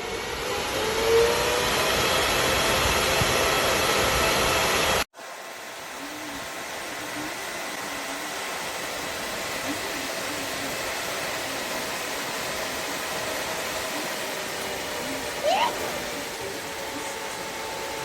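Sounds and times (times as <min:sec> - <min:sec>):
cooling fan running: 0:00.0 - 0:18.0.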